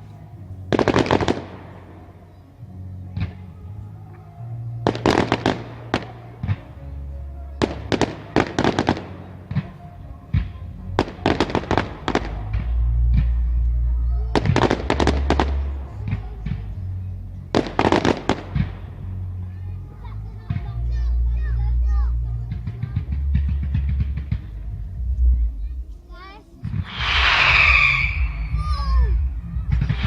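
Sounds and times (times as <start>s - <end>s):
fireworks cracking: 0.0s - 2.2s, 4.8s - 6.8s, 7.6s - 13.5s, 14.4s - 16.7s, 17.5s - 19.2s, 26.6s - 30.0s
fireworks booming: 0.7s - 2.2s, 14.4s - 16.8s, 17.5s - 19.2s, 26.6s - 30.0s.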